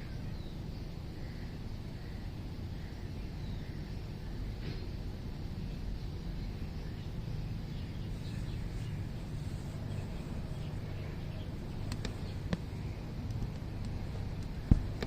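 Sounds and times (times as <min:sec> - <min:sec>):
birds chirping faintly: 0:00.0 - 0:15.0
steady low rumble: 0:00.0 - 0:15.0
sharp clicks: 0:11.8 - 0:15.0.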